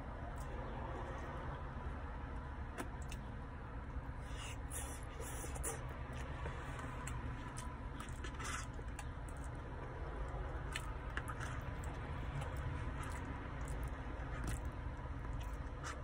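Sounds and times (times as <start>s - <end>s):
steady low hum: 0.0s - 16.0s
person chewing: 2.7s - 3.3s, 4.2s - 16.0s.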